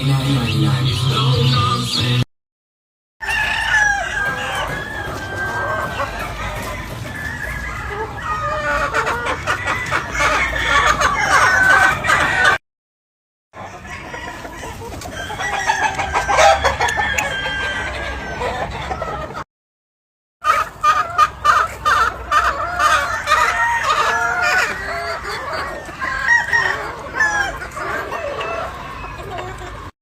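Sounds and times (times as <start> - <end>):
chickens clucking: 0.0 - 2.3, 3.2 - 12.6, 13.6 - 19.5, 20.4 - 30.0
roosters crowing: 3.2 - 12.6, 13.6 - 19.2, 20.4 - 29.9.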